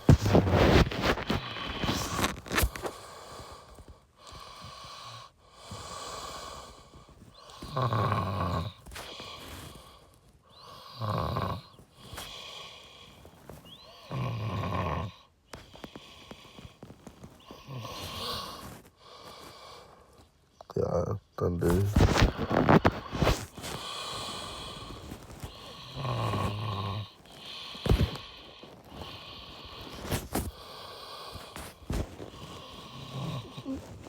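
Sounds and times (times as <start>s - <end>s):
man making snore-like sounds: 7.7s - 8.8s, 11.0s - 11.7s, 14.0s - 15.2s, 25.8s - 27.2s, 32.9s - 34.0s.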